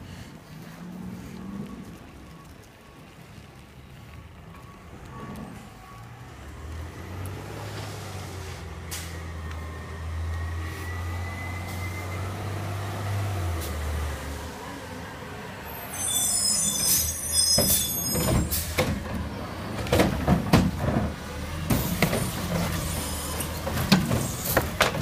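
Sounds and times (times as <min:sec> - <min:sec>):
truck diesel engine droning: 0:04.5 - 0:25.0
high-pitched brake squeal: 0:10.4 - 0:12.7, 0:15.6 - 0:18.8, 0:22.6 - 0:23.6.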